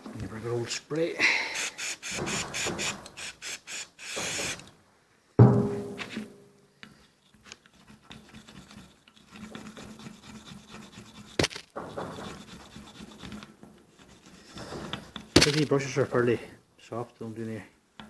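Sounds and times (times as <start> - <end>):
brush scrubbing metal: 7.2 - 15.6.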